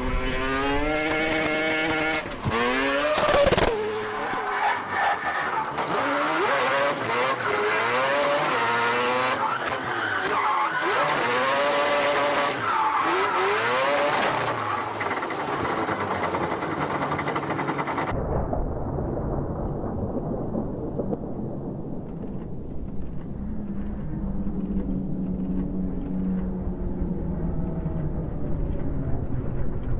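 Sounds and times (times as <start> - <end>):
rotary engine revving: 0.0 - 18.1.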